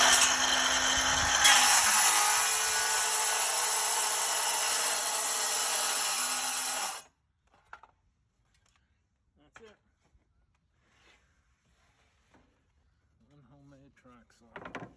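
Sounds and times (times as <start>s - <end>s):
circular saw cutting vinyl: 0.0s - 7.0s.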